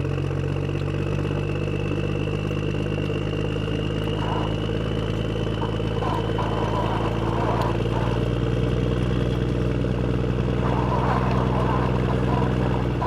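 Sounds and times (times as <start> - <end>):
engine running steadily: 0.0 - 13.0
faint voices: 4.0 - 8.4, 10.0 - 13.0.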